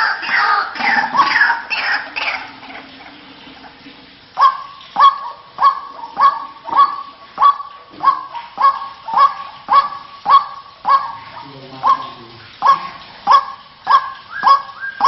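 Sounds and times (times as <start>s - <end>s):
waterhens calling: 0.0s - 15.0s
sharp bird calls: 4.4s - 15.0s.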